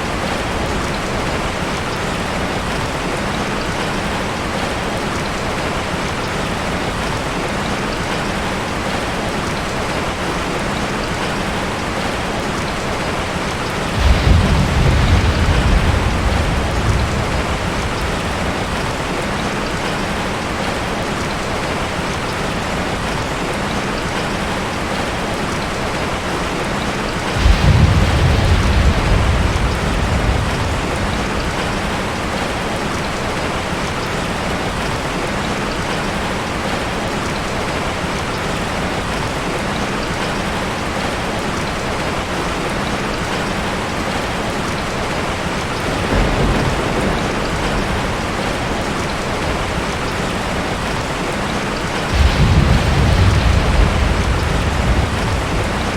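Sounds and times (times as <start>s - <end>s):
steady rain: 0.0s - 55.9s
low thunder rumble: 13.5s - 20.6s, 27.2s - 33.6s, 45.8s - 55.9s.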